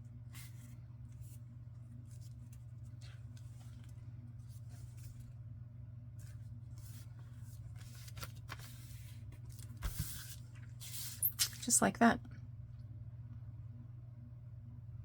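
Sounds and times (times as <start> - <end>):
low electrical hum: 0.0 - 15.0
paper rustling: 0.3 - 5.3, 6.2 - 11.7.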